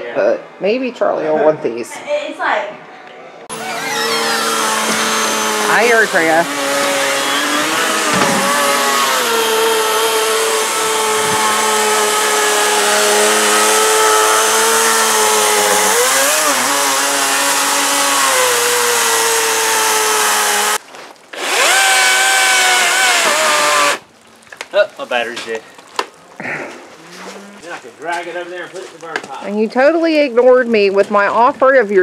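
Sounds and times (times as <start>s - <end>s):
chainsaw cutting wood: 3.5s - 24.0s.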